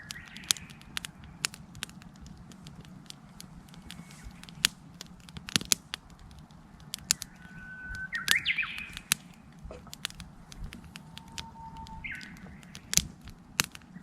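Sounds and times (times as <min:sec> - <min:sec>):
wood campfire crackling: 0:00.0 - 0:14.0
bird singing whistled note: 0:07.0 - 0:09.5, 0:10.6 - 0:13.0.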